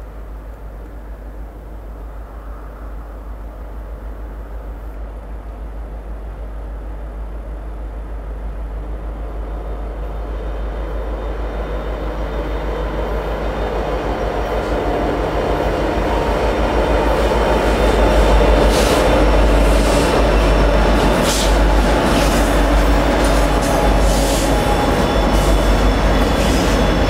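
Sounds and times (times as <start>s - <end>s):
locomotive engines passing: 9.4s - 27.0s.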